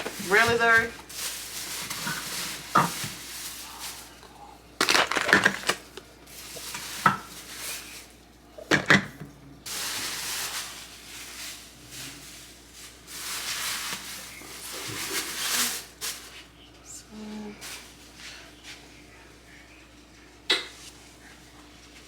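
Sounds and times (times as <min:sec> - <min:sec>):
containers knocking and clattering: 0:01.8 - 0:03.2, 0:04.8 - 0:06.1, 0:08.6 - 0:09.3.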